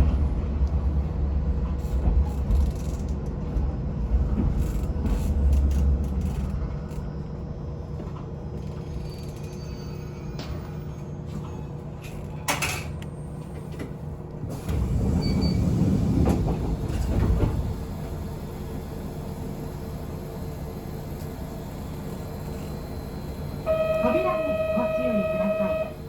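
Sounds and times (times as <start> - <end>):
train electrical hum: 0.0 - 26.0
train doors sliding shut: 13.6 - 20.2
announcement chime: 23.7 - 26.0.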